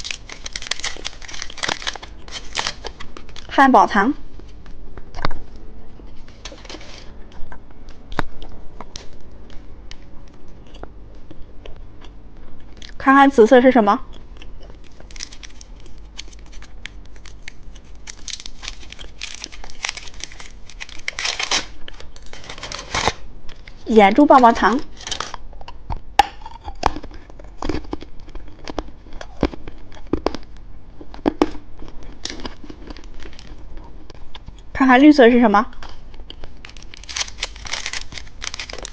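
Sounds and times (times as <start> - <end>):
plastic packaging crinkling: 0.0 - 3.5, 14.7 - 23.8, 31.2 - 33.8, 35.8 - 38.9.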